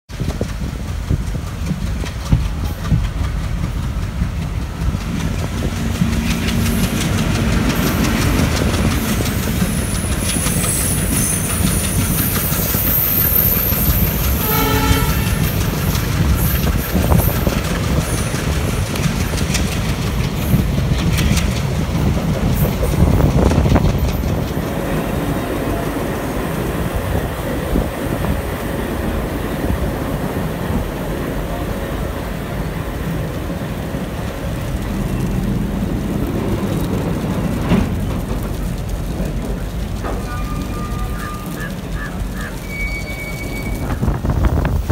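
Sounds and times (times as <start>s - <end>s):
train rumble and wheel clatter: 0.0s - 44.9s
passing train: 0.1s - 44.9s
short train horn blast: 14.3s - 15.6s.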